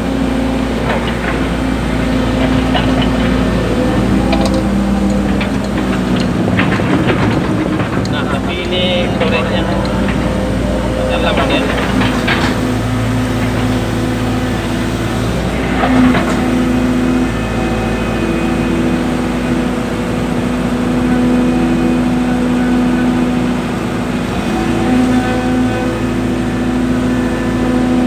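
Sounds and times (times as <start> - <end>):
excavator diesel engine running: 0.0 - 28.0
excavator digging soil: 0.0 - 28.0.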